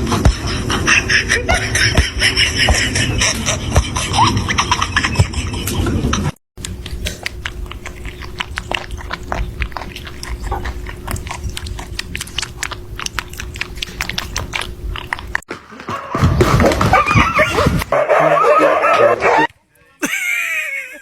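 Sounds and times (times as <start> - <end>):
faint steady hum: 6.6 - 15.4
pet chewing and crunching: 6.6 - 19.5.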